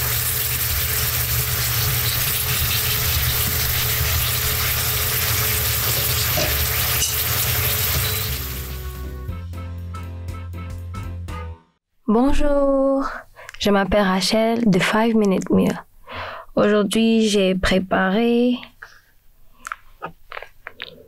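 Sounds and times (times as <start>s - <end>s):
potatoes sizzling in oil: 0.0s - 9.0s
background music: 7.2s - 11.8s.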